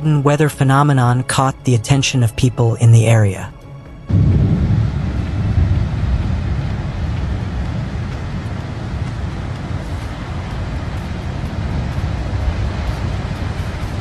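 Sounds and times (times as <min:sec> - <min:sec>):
steady low rumble: 0:00.0 - 0:14.0
faint hiss: 0:04.1 - 0:14.0.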